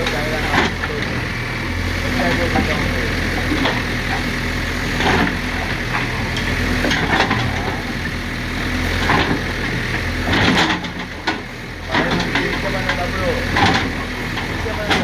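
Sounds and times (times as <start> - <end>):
diesel engine running: 0.0 - 15.0
knocks and clatter: 10.2 - 15.0.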